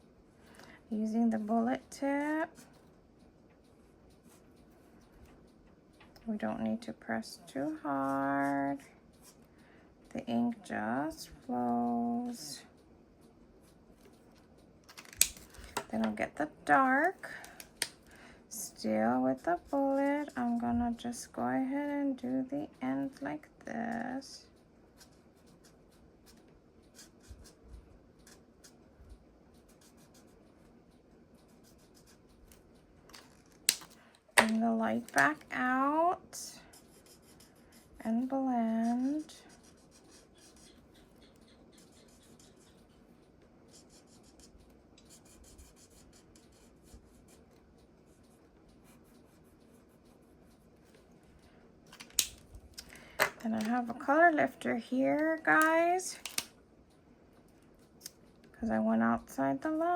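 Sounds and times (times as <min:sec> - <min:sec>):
marker scratching on paper: 0:29.5 - 0:30.5, 0:36.7 - 0:43.0, 0:43.7 - 0:51.0
marker rubbing on card: 0:38.8 - 0:42.9
small ticks: 0:38.9 - 0:51.6
sharp click: 0:52.0 - 0:53.8.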